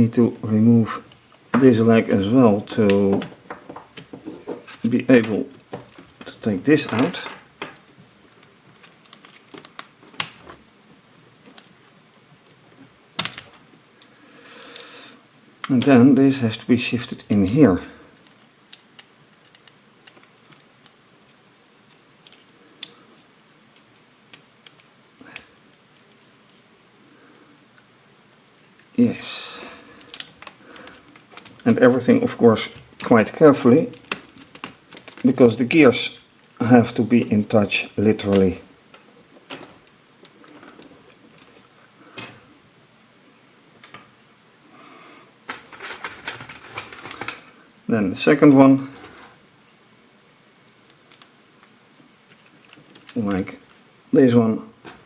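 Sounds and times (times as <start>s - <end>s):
small plastic parts clicking: 5.7s - 10.6s, 13.2s - 14.1s, 18.2s - 26.7s, 30.0s - 31.8s, 33.9s - 35.4s, 45.5s - 47.5s, 50.6s - 53.8s.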